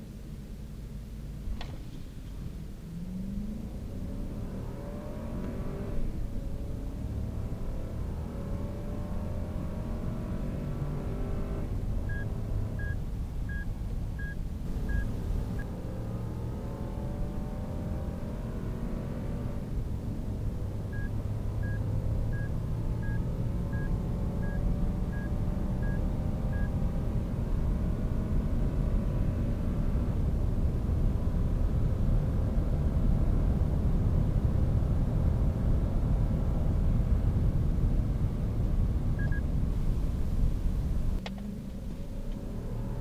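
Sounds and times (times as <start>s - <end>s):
car engine accelerating hard: 2.7s - 12.9s, 14.7s - 43.0s
vehicle chime beeping: 12.1s - 15.1s, 20.9s - 26.7s.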